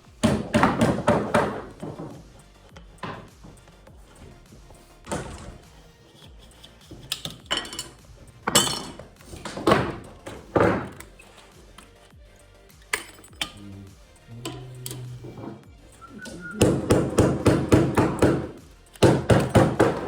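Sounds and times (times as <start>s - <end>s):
background music: 0.0s - 20.0s
knocks and thuds: 0.2s - 3.6s, 4.5s - 5.7s, 8.4s - 11.0s.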